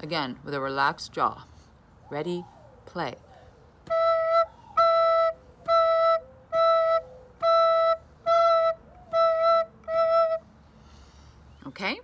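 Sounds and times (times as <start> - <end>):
recorder playing short notes: 3.8 - 10.4.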